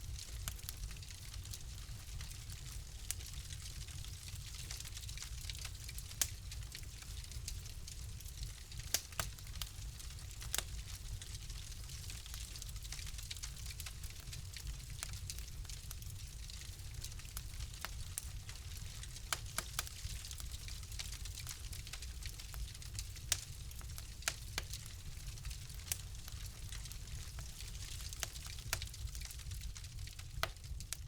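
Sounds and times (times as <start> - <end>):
fire crackling in a fireplace: 0.0 - 31.0
low rumble of flame: 0.0 - 31.0.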